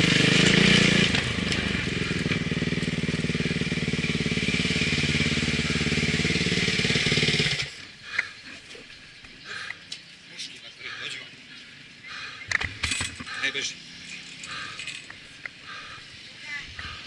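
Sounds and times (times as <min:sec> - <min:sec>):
dirt bike engine running: 0:00.0 - 0:08.4, 0:10.9 - 0:17.0.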